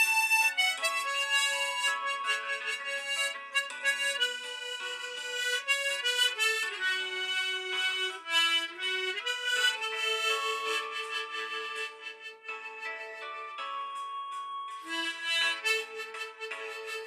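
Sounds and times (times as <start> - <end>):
harmonica playing slow melody: 0.0 - 14.1, 14.7 - 17.0.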